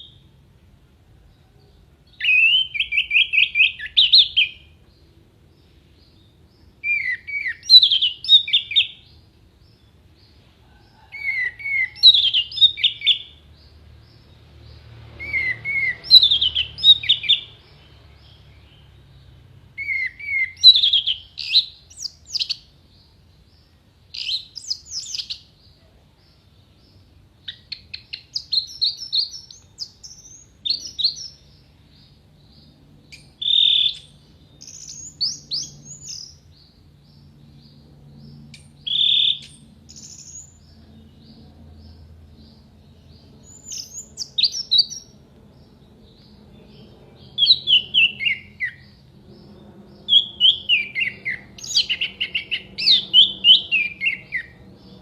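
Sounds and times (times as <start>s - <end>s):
thrush singing whistled phrases: 2.2s - 4.6s, 6.8s - 9.0s, 15.2s - 17.5s, 19.8s - 22.6s, 47.4s - 48.9s, 50.1s - 54.6s.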